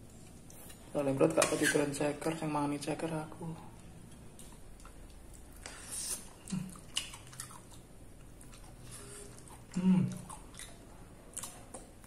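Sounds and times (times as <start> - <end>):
person chewing: 4.0 - 12.0.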